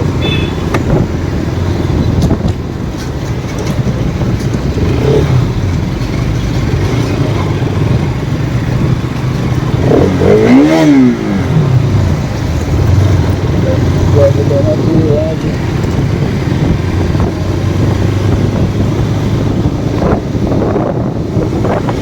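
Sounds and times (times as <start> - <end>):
wind noise on microphone: 0.0 - 14.2, 14.8 - 22.0
motorcycle engine running: 0.0 - 22.0
tone rising and falling: 13.4 - 15.5.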